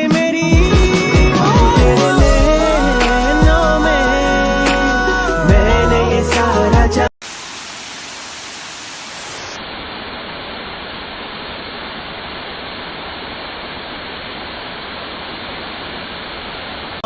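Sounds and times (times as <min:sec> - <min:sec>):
music: 0:00.0 - 0:07.1
waterfall rushing: 0:07.2 - 0:09.6.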